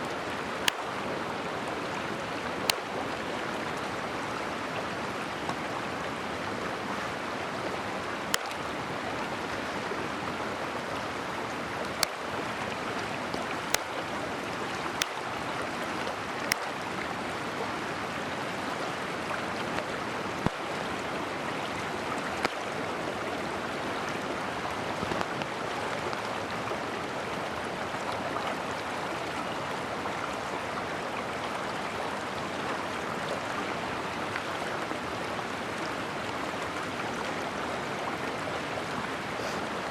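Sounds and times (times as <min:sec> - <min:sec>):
mountain stream rushing: 0:00.0 - 0:39.9
sharp clicks: 0:13.8 - 0:14.0.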